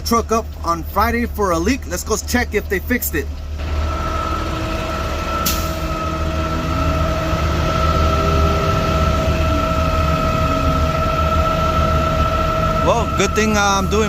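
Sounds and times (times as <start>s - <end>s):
garbage truck engine rumbling: 0.0s - 14.0s
high whine: 3.6s - 14.0s.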